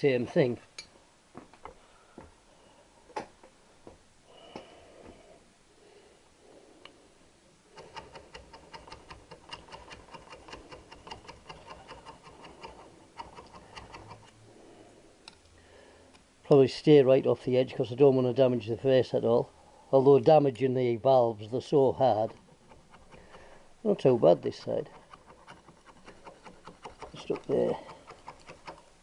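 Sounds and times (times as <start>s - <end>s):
scraping deposits off engine valve: 21.6s - 28.8s.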